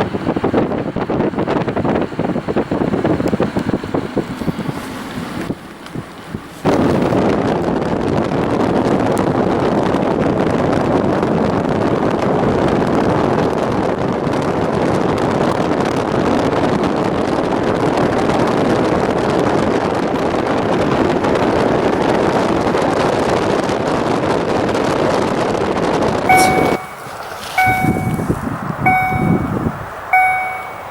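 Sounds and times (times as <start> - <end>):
wind on microphone: 0.0 - 21.9, 26.3 - 30.9
train wheels on track: 1.2 - 7.2, 26.3 - 30.9.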